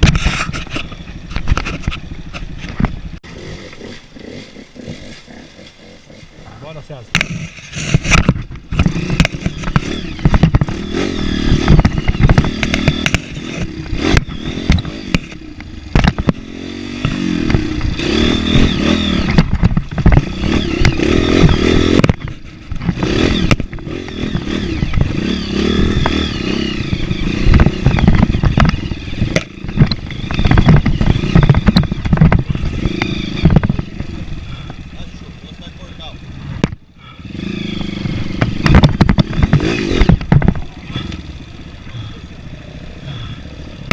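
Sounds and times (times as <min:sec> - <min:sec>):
motorcycle engine revving: 0:00.0 - 0:43.9
knocks and rattles from bumps: 0:07.1 - 0:16.4, 0:19.3 - 0:26.2, 0:26.9 - 0:34.8, 0:37.8 - 0:40.8.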